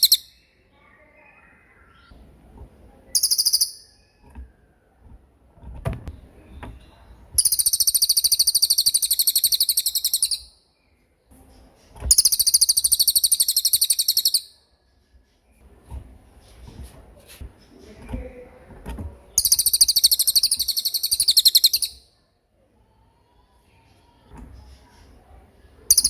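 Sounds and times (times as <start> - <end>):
songbird trilling: 0.0 - 0.4, 3.1 - 4.2, 7.4 - 10.6, 12.1 - 14.6, 19.4 - 22.0.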